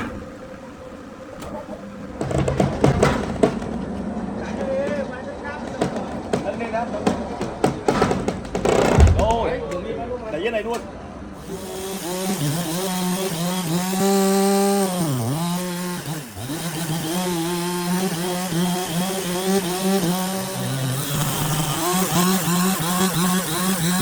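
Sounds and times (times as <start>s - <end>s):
chainsaw engine revving: 11.4s - 24.0s.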